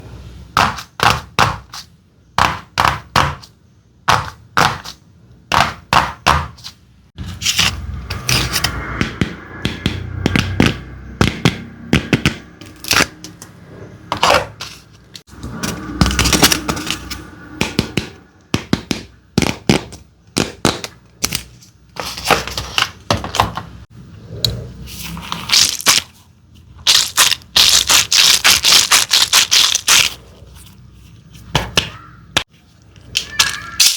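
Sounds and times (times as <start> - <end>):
hard candy cracking: 25.5 - 26.1, 26.8 - 30.2.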